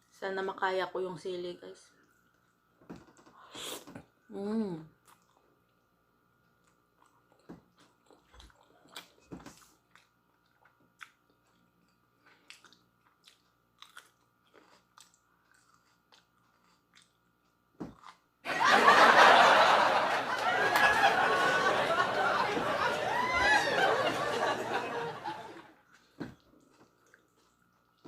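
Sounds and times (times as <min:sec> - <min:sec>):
person chewing with crunches: 0:05.0 - 0:18.3, 0:25.8 - 0:28.0.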